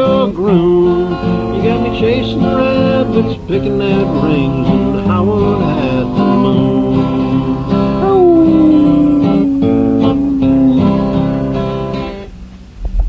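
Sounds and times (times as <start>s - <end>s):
man singing: 0.0s - 11.4s
acoustic guitar strumming: 0.0s - 12.2s.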